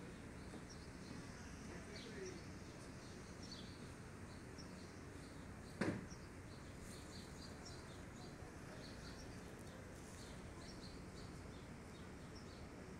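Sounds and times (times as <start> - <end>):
small birds chirping: 0.0 - 12.9
sharp thump: 5.8 - 6.1.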